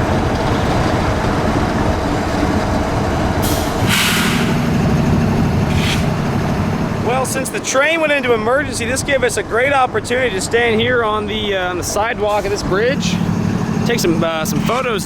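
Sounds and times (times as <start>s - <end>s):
low engine hum: 0.0s - 15.0s
passing road traffic: 0.0s - 15.0s
stopped freight train rumble: 0.0s - 15.0s
strong hiss: 3.4s - 4.7s.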